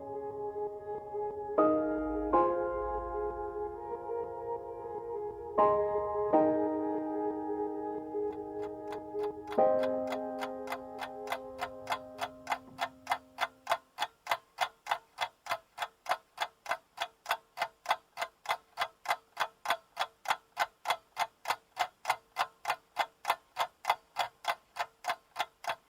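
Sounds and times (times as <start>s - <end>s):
held music notes: 0.0s - 13.7s
clock ticking: 8.3s - 25.9s.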